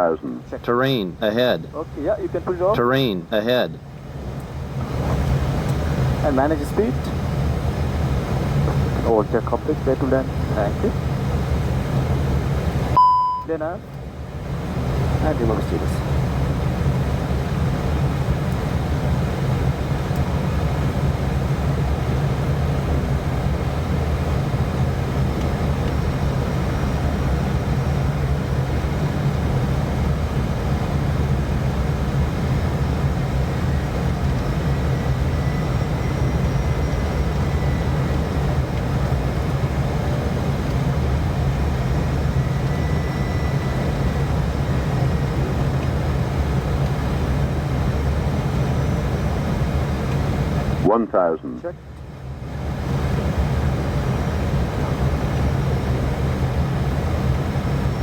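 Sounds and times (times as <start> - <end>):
airliner cockpit engine drone: 0.0 - 58.0.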